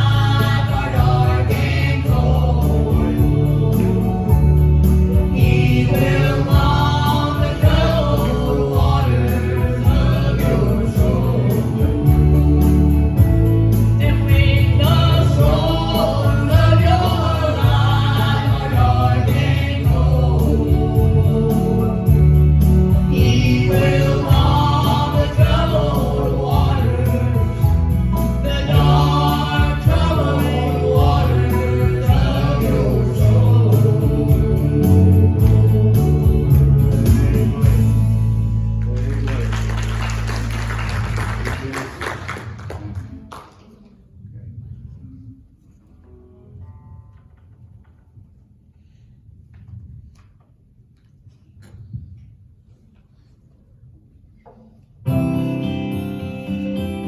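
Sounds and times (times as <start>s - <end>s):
group singing gospel song: 0.0s - 38.2s
steady bass: 0.0s - 41.4s.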